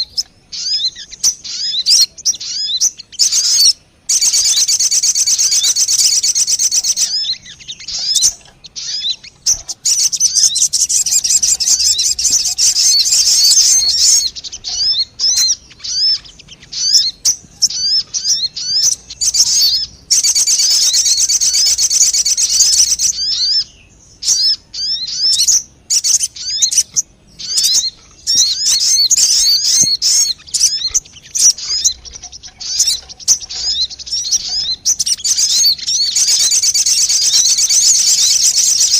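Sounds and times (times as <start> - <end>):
high-pitched bird chirps: 0.0 - 38.9.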